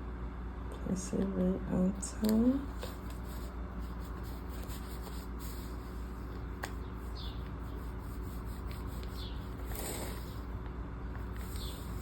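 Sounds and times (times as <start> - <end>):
steady low hum: 0.0 - 12.0
paper rustling: 2.7 - 10.5, 11.2 - 12.0.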